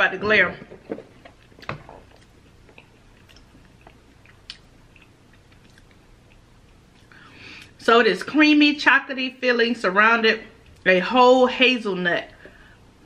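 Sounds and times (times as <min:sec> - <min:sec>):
chewing with crunches: 0:00.7 - 0:07.8.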